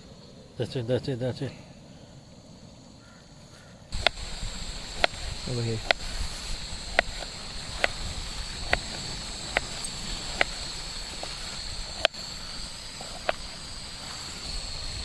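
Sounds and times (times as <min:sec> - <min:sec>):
high-pitched hiss: 0:00.0 - 0:15.0.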